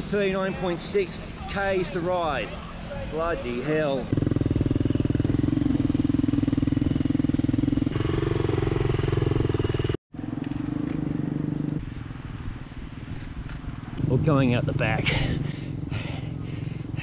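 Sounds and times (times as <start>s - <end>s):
engine running steadily: 2.5s - 17.0s.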